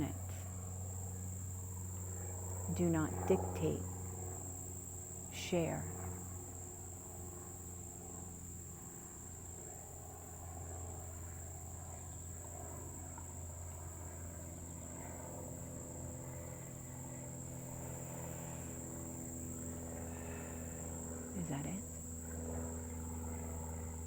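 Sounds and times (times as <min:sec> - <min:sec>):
crickets trilling: 0:00.0 - 0:24.0
low steady hum: 0:00.0 - 0:24.0.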